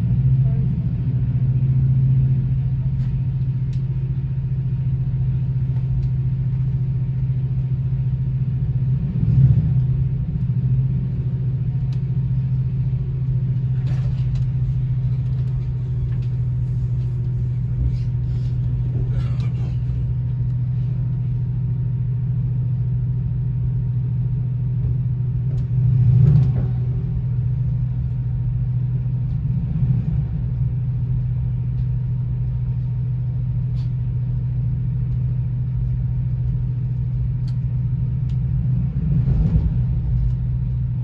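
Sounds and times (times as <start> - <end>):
train running rumble inside coach: 0.0 - 41.0.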